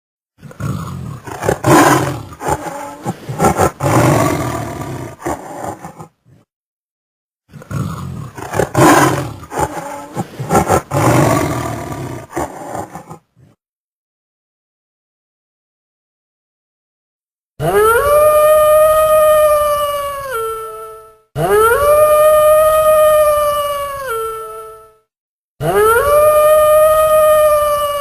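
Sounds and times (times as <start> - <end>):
big cat roaring: 0.4 - 6.4, 7.5 - 13.6.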